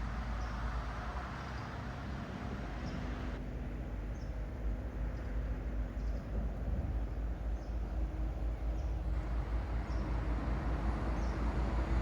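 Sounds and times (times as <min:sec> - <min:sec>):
rumbling outdoor noise: 0:07.9 - 0:12.0.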